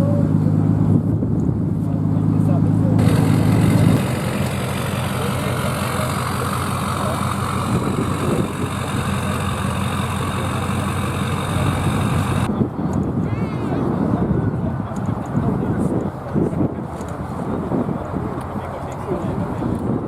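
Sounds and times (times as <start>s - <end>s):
vehicle engine idling: 0.0s - 12.5s.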